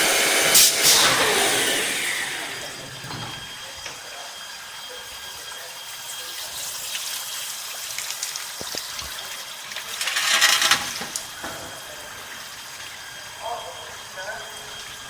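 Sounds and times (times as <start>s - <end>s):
steady motor whine: 0.0s - 5.8s
running water: 0.8s - 15.0s
drill bits grinding into glass: 9.8s - 11.3s.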